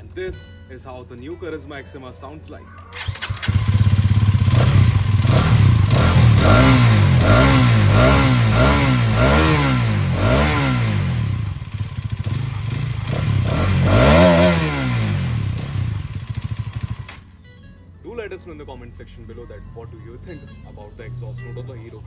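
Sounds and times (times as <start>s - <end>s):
motorcycle engine revving: 2.8s - 17.5s.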